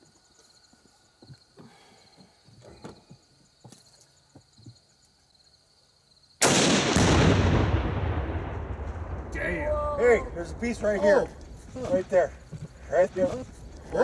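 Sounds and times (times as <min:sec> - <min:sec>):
rifle shot and explosion: 0:06.4 - 0:11.1
rolling boom: 0:06.4 - 0:11.8.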